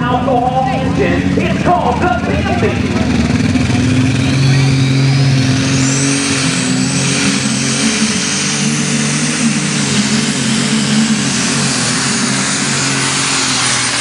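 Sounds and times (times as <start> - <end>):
tractor engine running hard: 0.0 - 14.0.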